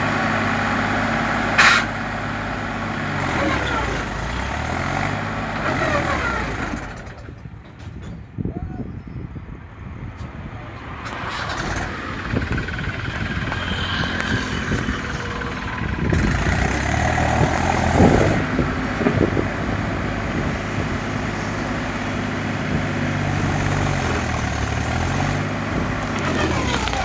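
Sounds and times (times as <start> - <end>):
tractor engine running: 0.0 - 8.0, 11.0 - 27.0.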